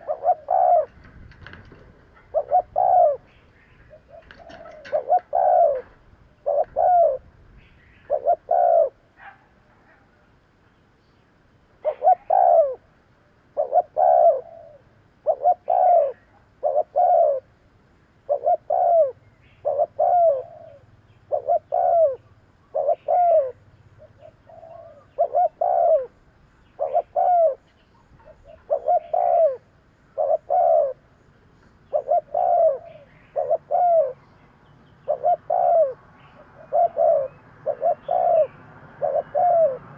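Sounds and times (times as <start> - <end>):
dove cooing: 0.0 - 9.1, 11.8 - 17.6, 18.2 - 31.2, 31.8 - 34.3, 35.0 - 39.9.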